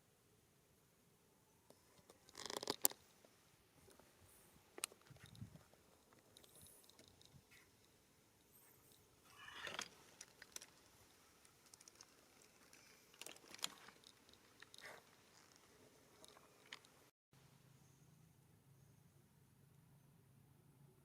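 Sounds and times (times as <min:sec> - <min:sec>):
crunches and clicks: 0:01.7 - 0:03.0, 0:04.7 - 0:17.1.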